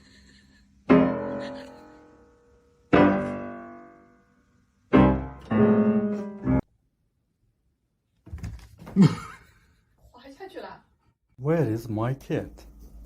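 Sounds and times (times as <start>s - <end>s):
piano chords ringing: 0.9s - 6.7s.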